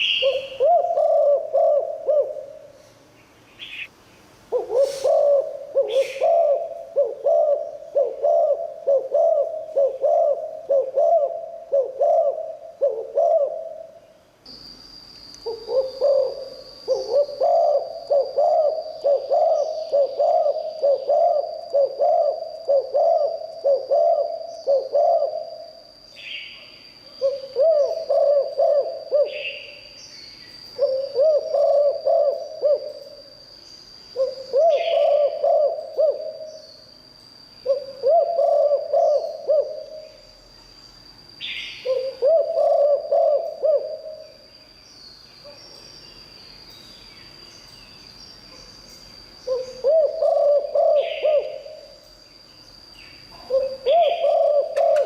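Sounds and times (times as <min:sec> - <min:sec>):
dove cooing: 0:00.0 - 0:02.8, 0:04.5 - 0:14.0, 0:15.5 - 0:25.8, 0:27.1 - 0:29.9, 0:30.8 - 0:33.2, 0:34.2 - 0:36.6, 0:37.6 - 0:40.3, 0:41.4 - 0:44.4, 0:49.5 - 0:52.0, 0:53.3 - 0:55.0.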